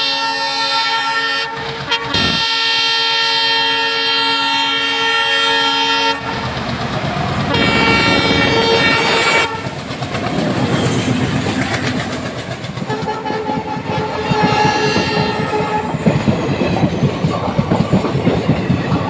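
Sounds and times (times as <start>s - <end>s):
locomotive horn blasts: 0.0s - 6.5s, 7.5s - 9.8s, 12.9s - 16.0s
train wheels clickety-clack: 0.0s - 19.0s
diesel engine chugging: 5.3s - 19.0s.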